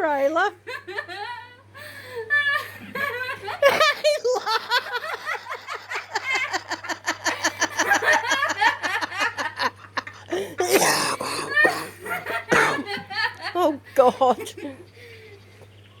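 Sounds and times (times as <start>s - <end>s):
person laughing hard: 2.6s - 13.6s
person coughing: 10.4s - 13.0s.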